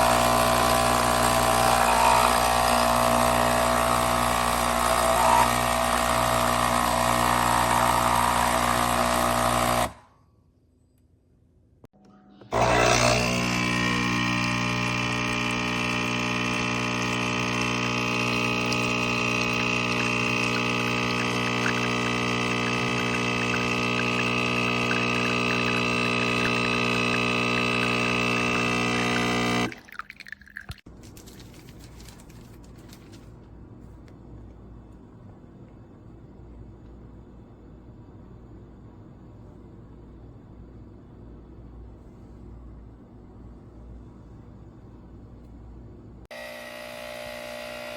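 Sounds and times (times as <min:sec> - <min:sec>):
coffee machine pump buzzing: 0:00.0 - 0:10.0, 0:12.5 - 0:30.7, 0:46.3 - 0:47.9
liquid pouring into cup: 0:18.2 - 0:32.2.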